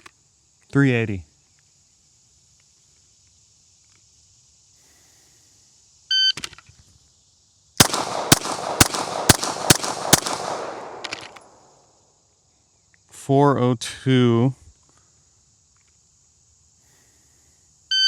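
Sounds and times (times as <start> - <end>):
pistol shots with echo: 7.8 - 11.6.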